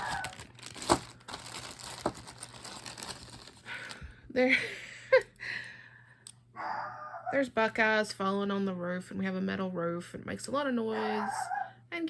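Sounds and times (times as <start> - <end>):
plastic bags crinkling: 0.0 - 4.2.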